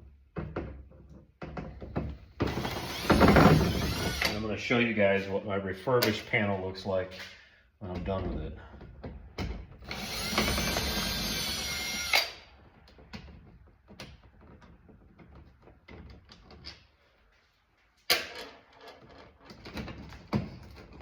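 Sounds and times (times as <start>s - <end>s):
power drill running: 2.4s - 4.4s, 9.8s - 12.5s.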